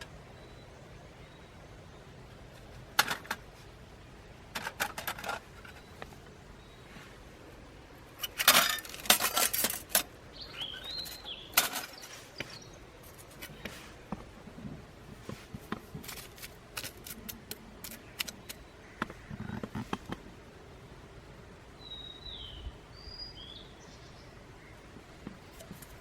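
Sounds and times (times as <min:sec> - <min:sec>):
bird call: 0:10.3 - 0:12.7.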